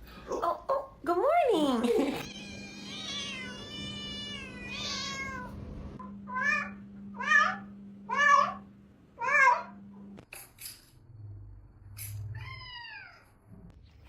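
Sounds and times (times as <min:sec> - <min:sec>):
steady low hum: 0:00.0 - 0:12.6
cat meowing: 0:02.2 - 0:05.6, 0:12.3 - 0:13.3.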